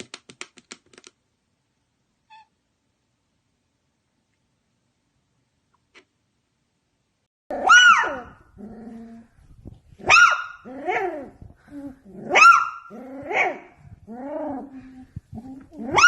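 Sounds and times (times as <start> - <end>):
dog barking: 7.5 - 8.4, 10.0 - 11.1, 12.3 - 13.8
dog whining: 10.1 - 16.0.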